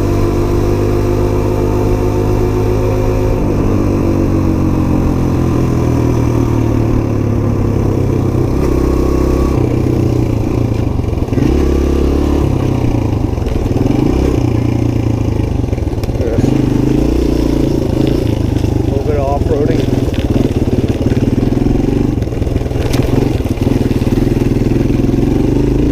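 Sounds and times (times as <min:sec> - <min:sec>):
motorcycle engine revving: 0:00.0 - 0:25.9.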